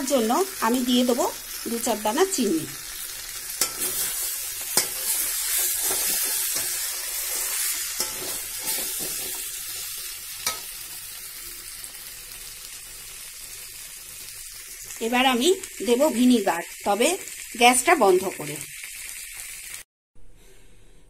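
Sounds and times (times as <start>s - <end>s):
vegetables sizzling in oil: 0.0s - 19.9s
spatula clacking against pan: 3.6s - 4.1s, 4.8s - 5.2s, 8.0s - 9.4s, 10.4s - 10.7s
spatula scraping metal pan: 3.6s - 9.6s.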